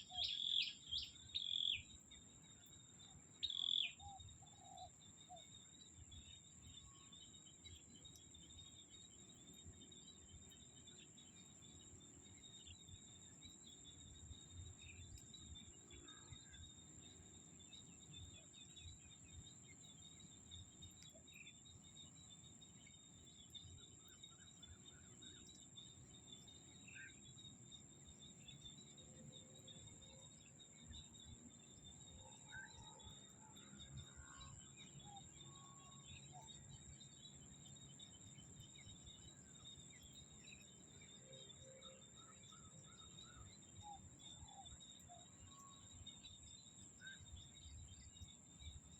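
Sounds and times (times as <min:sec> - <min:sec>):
bird chirps: 0:00.0 - 0:01.9, 0:03.4 - 0:04.9
small frogs calling: 0:00.0 - 0:01.9, 0:03.4 - 0:04.9
buzzing insect chorus: 0:00.0 - 0:48.9
high insect drone: 0:00.0 - 0:48.9.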